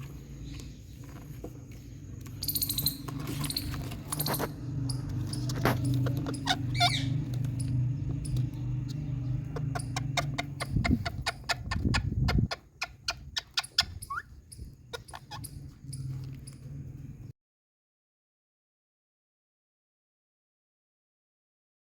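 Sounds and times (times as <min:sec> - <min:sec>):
steady low hum: 0:00.0 - 0:17.3
parrot calling: 0:02.4 - 0:16.2.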